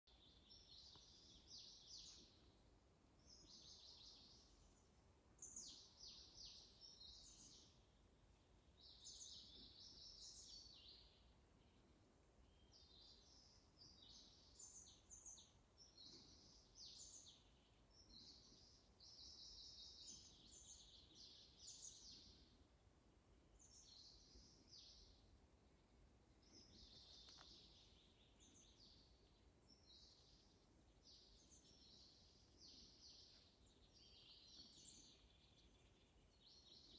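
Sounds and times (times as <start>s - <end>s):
faint low hum: 0.1s - 36.9s
songbirds singing: 0.1s - 36.9s.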